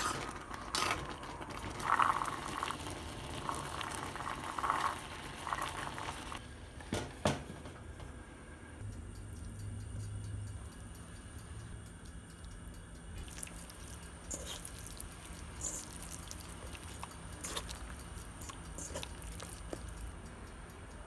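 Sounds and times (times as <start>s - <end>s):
steady low hum: 8.2s - 21.0s
food being handled: 13.2s - 20.1s.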